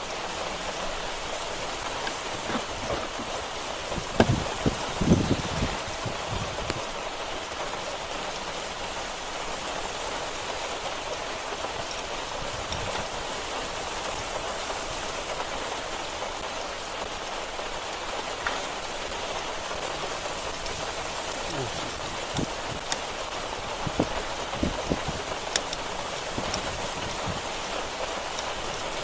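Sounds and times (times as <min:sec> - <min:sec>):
rain on hard surfaces: 0:00.0 - 0:29.0
short knocks: 0:02.0 - 0:04.8.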